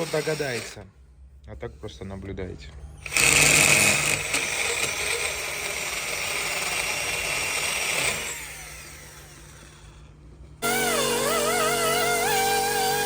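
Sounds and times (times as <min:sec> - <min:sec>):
power tool motor whining: 0:00.0 - 0:00.8, 0:03.0 - 0:10.0, 0:10.6 - 0:13.0.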